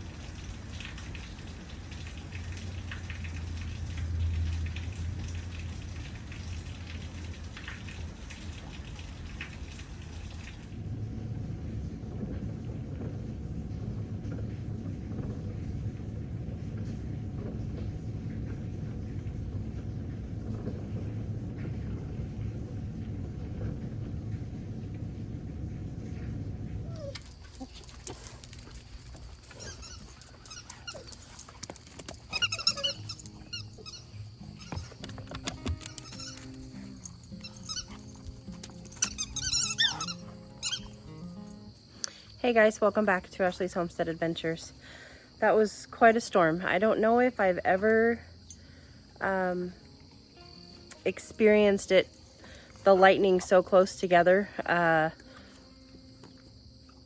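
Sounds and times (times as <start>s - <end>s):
thunder rumbling: 0.0s - 29.6s
heavy rain falling: 0.0s - 41.5s
muffled low rumble: 10.6s - 28.7s.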